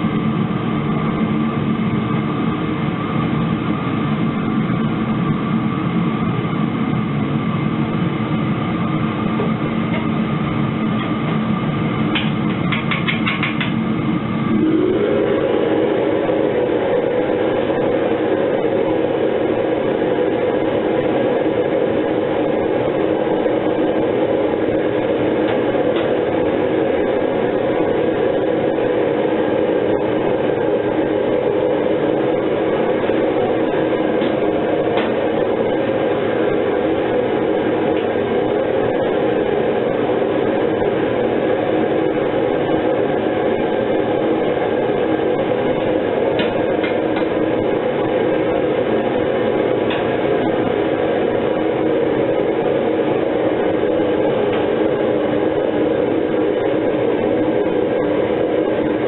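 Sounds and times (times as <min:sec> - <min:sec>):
furnace burner and blower roaring: 0:00.0 - 0:59.0.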